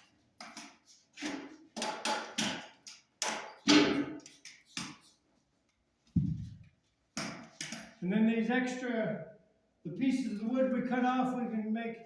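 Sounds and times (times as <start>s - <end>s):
hard objects knocking and clattering: 6.2s - 7.8s.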